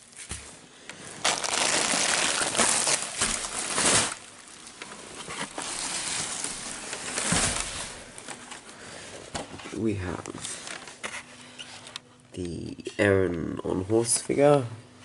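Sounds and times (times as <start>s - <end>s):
packing material rustling: 0.0s - 8.9s.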